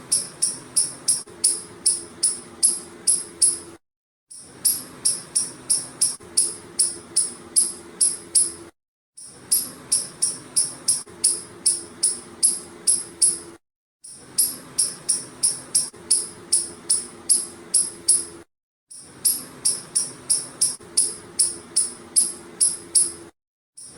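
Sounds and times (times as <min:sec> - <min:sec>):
squirrel chirping calls: 0:00.1 - 0:03.6.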